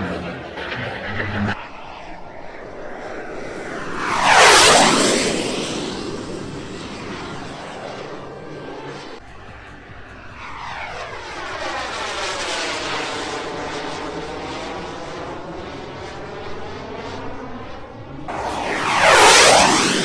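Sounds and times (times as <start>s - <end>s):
airplane flying past: 0.0s - 20.0s
loud whoosh: 18.3s - 20.0s.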